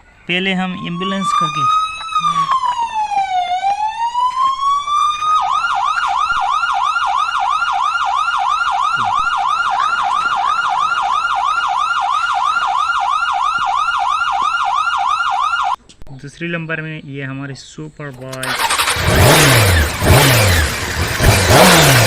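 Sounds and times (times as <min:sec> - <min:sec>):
toy siren wailing and yelping: 0:00.7 - 0:15.8.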